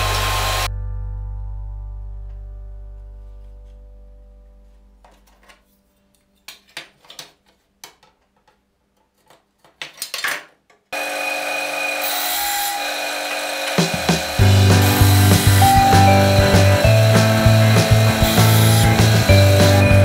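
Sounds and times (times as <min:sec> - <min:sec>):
band saw running: 0:00.0 - 0:00.7, 0:11.0 - 0:20.0.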